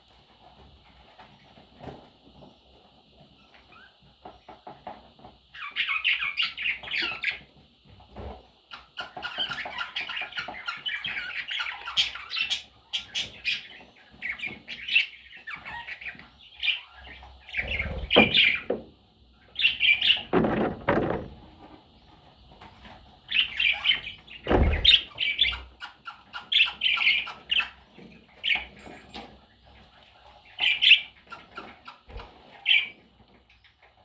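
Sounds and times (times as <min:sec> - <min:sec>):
budgerigars chirping and chattering: 0:05.5 - 0:07.6, 0:08.7 - 0:18.8, 0:19.4 - 0:21.2, 0:23.3 - 0:34.0.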